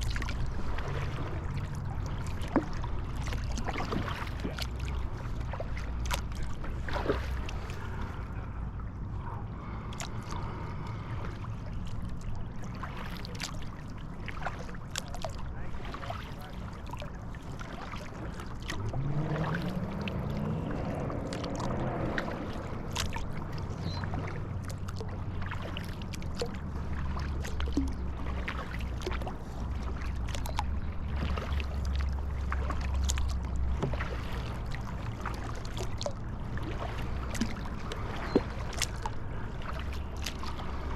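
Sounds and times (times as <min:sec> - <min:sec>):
low rumble of water and wind: 0:00.0 - 0:40.9
paddle splashing water: 0:00.0 - 0:40.9
pitched hum rising: 0:18.7 - 0:24.6.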